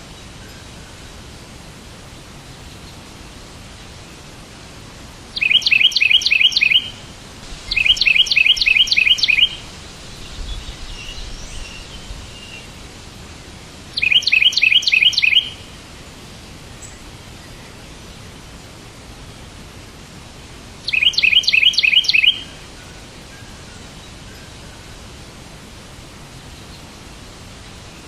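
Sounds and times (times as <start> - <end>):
background hiss: 0.0 - 28.0
songbird chirping: 3.7 - 13.0, 13.8 - 15.8, 20.8 - 25.1
faint twittering: 7.7 - 12.5.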